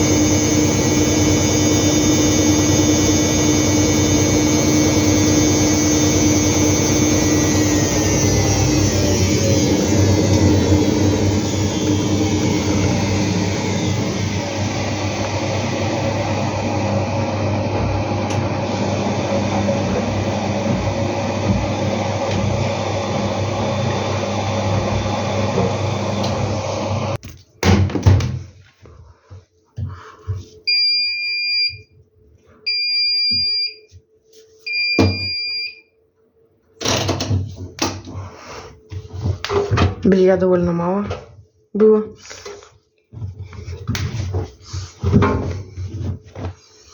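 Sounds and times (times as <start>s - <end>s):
washing machine drum spinning: 0.0s - 27.2s
washing machine beeps: 30.7s - 32.0s, 32.6s - 34.0s, 34.6s - 36.0s.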